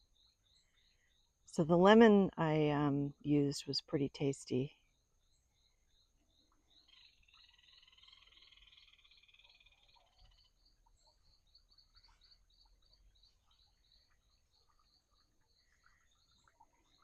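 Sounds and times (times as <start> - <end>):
frogs chirping: 4.9 - 17.0
frog trilled call: 6.8 - 10.7.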